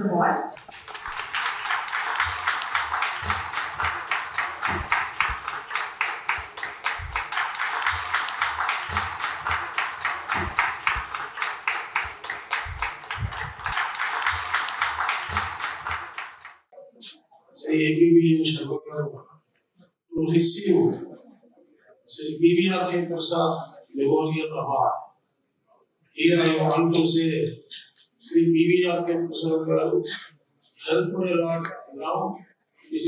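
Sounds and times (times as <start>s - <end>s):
audience applauding: 0.6s - 16.7s
low thumps: 12.6s - 13.7s.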